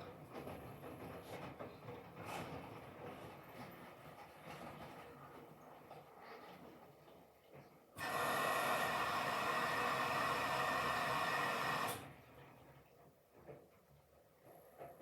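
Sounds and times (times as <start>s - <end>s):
faint washing machine noise: 0.0s - 15.0s
washing machine rushing: 8.0s - 12.8s.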